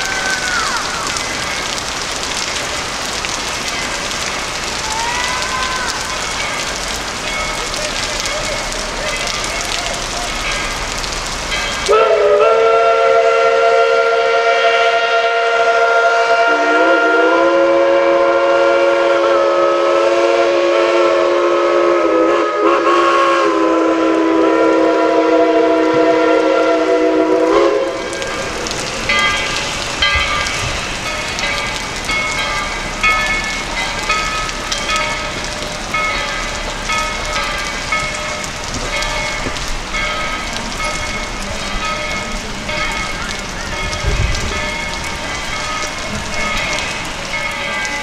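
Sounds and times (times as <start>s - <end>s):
steam locomotive chime whistle: 11.9s - 28.4s
steady hiss: 25.4s - 48.0s.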